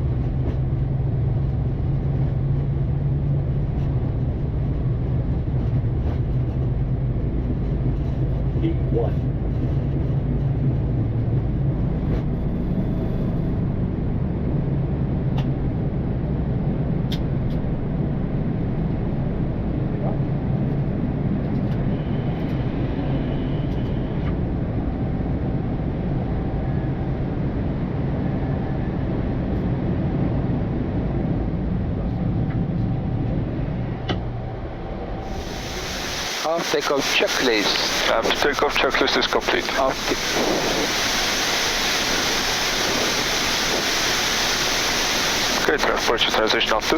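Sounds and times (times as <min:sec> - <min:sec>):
jet engines and airflow rumble: 0:00.0 - 0:46.9
low hum: 0:29.6 - 0:46.9.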